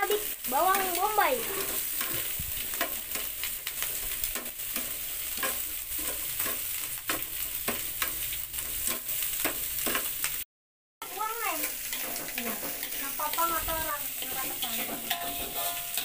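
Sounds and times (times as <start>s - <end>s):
onion rings sizzling in grill pan: 0.0s - 10.4s, 11.0s - 16.0s
tongs clicking and scraping pan: 0.0s - 10.4s, 11.2s - 16.0s.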